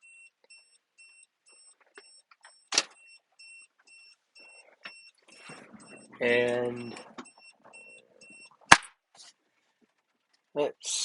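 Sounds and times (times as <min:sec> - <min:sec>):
warning beeper beeping: 0:03.0 - 0:08.6.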